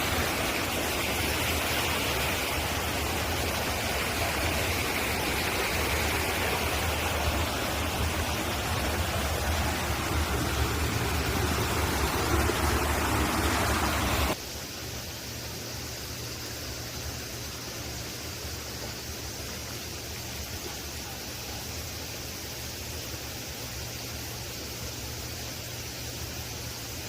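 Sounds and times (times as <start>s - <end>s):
mountain stream rushing: 0.0s - 14.4s.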